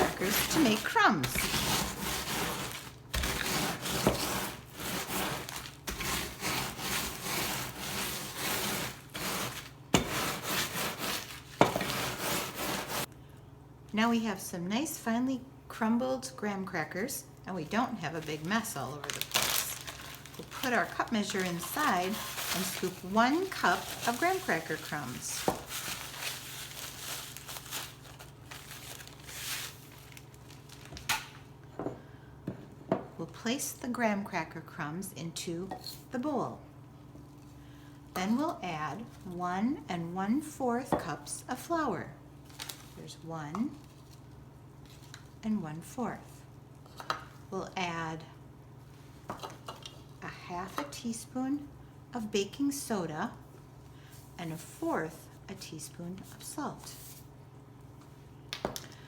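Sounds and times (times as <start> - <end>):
plastic bag crinkling: 0.0 - 9.8, 17.6 - 31.5
rolling pin crushing crackers: 0.0 - 13.1.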